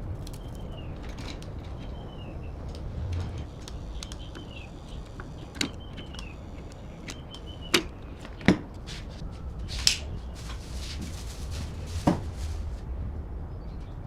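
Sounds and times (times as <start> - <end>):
low hum: 0.0 - 14.0
tools knocking and clicking: 3.2 - 8.8.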